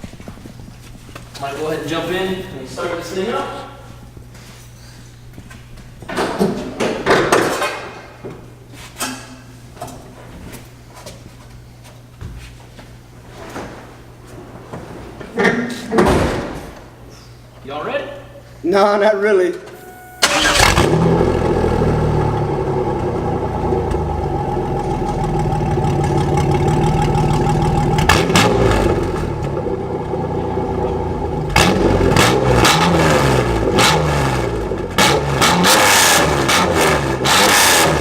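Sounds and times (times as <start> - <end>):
car engine idling and revving: 19.9 - 38.0.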